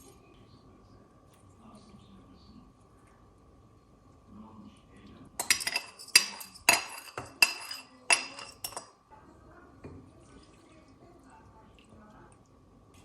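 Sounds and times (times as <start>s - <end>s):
kitchenware clinking: 5.4s - 9.0s.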